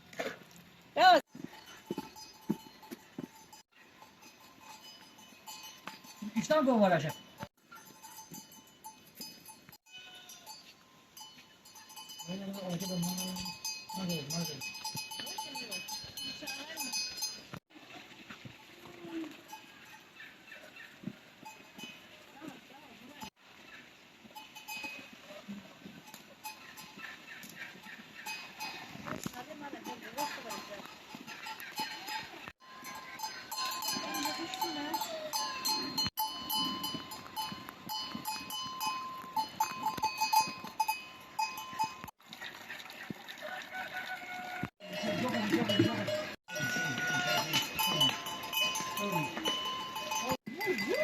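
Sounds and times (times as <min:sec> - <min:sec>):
livestock bells clinking: 0:01.0 - 0:17.8, 0:18.6 - 0:23.4, 0:24.1 - 0:51.0
animals bleating: 0:09.9 - 0:10.6, 0:31.3 - 0:35.8, 0:44.3 - 0:50.9.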